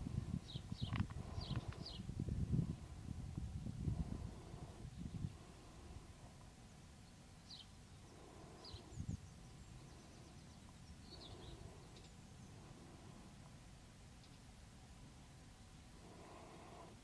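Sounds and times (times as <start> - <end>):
birds chirping: 0.4 - 2.1, 6.6 - 13.1.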